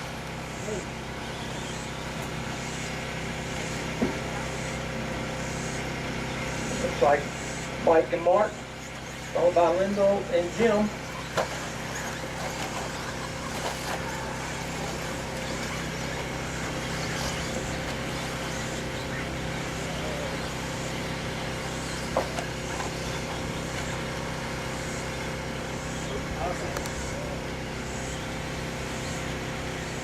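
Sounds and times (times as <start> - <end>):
rc truck motor whine: 0.0 - 30.0.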